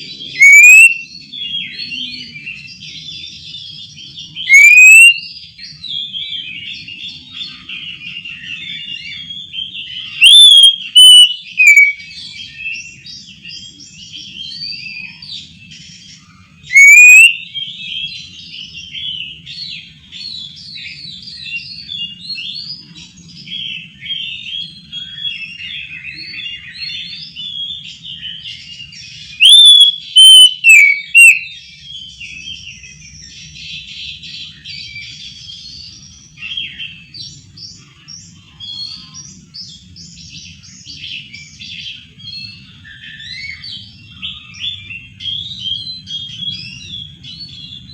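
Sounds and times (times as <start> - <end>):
loud rising bird whistles: 0.0 - 3.2, 4.3 - 5.4, 8.3 - 12.8, 16.7 - 18.2, 24.0 - 33.2
bird warbling song: 0.0 - 47.9.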